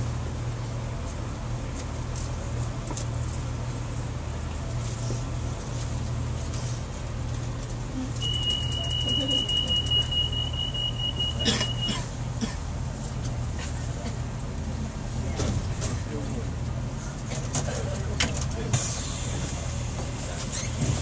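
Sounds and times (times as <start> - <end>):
train engine hum: 0.0 - 21.0
high-pitched electronic beep: 8.2 - 11.9.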